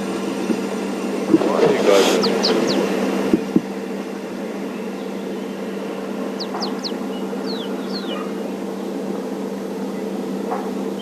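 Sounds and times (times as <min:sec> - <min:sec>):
bird chirping: 0:01.3 - 0:03.6, 0:04.7 - 0:08.7.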